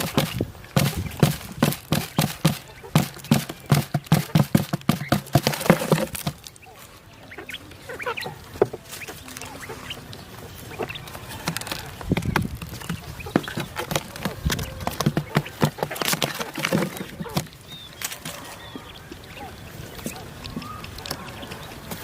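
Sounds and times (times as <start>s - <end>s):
sharp knocks: 0.0s - 6.5s
poultry calling: 0.0s - 22.0s
rustling: 0.0s - 22.0s.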